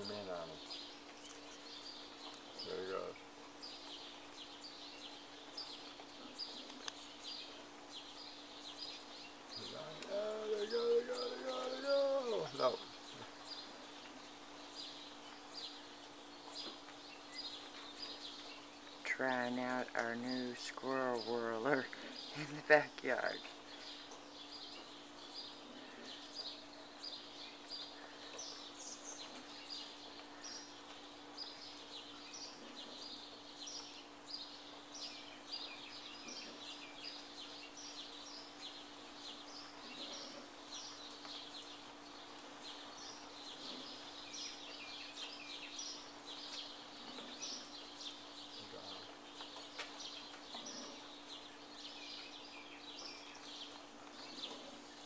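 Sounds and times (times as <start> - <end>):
small birds chirping: 0.0 - 55.0
steady low hum: 0.0 - 55.0.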